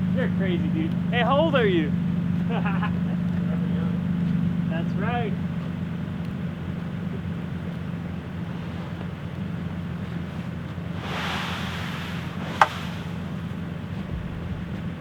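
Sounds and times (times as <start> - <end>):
vehicle engine idling: 0.0 - 15.0
rushing swell: 10.9 - 13.6
wind noise: 10.9 - 15.0.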